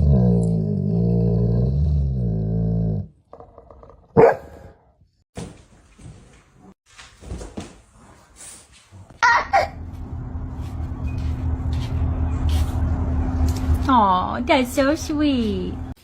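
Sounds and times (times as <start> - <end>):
dog barking: 4.2 - 4.8.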